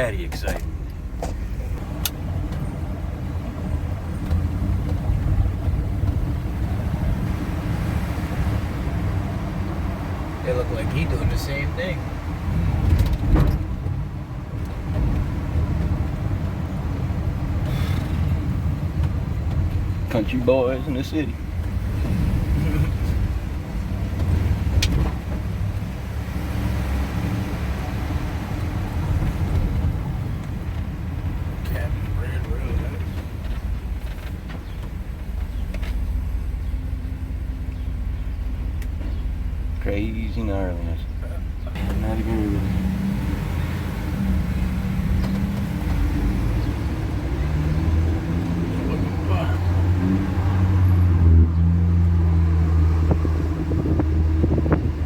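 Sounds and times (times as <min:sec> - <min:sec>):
truck engine and road rumble: 0:00.0 - 0:55.0.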